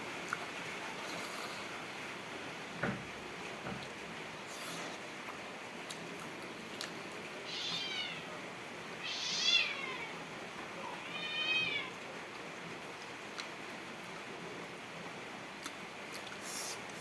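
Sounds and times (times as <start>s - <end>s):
cat meowing: 7.4s - 8.3s, 9.0s - 10.2s, 10.8s - 12.0s.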